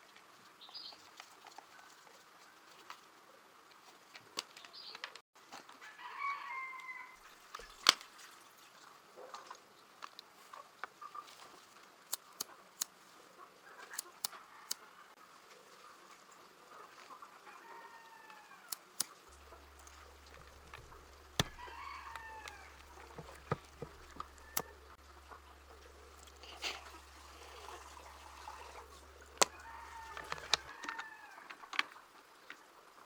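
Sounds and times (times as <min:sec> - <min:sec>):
sharp clicks and taps: 0:18.7 - 0:24.9
low steady hum: 0:19.3 - 0:30.7.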